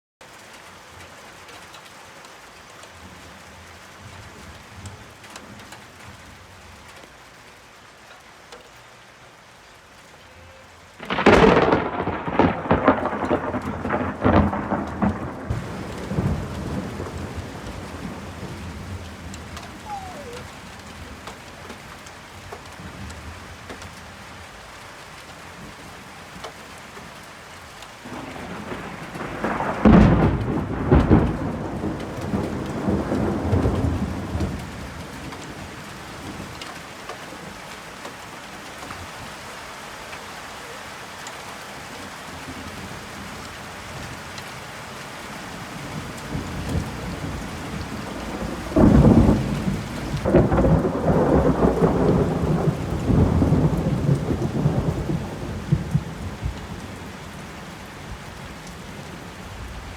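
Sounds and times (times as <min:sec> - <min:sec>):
steady rain falling: 0:00.2 - 0:59.9
thunder rumbling: 0:11.0 - 0:21.8, 0:28.0 - 0:36.5, 0:45.7 - 0:57.0.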